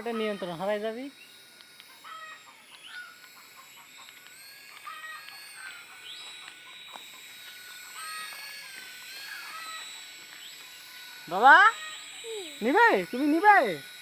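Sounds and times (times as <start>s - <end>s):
toy helicopter motor whining: 0.0s - 14.0s
birds chirping: 2.0s - 4.2s.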